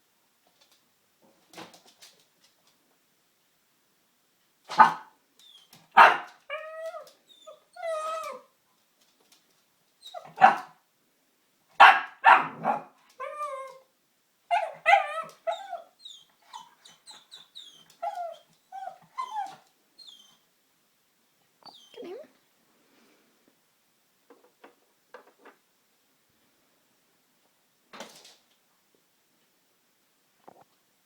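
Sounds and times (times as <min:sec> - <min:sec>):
puppy barking: 0:04.7 - 0:05.1, 0:06.0 - 0:06.4, 0:10.2 - 0:10.8, 0:11.8 - 0:13.0
puppy whining yips: 0:04.8 - 0:08.5, 0:10.0 - 0:10.7, 0:14.5 - 0:20.4, 0:21.6 - 0:22.1.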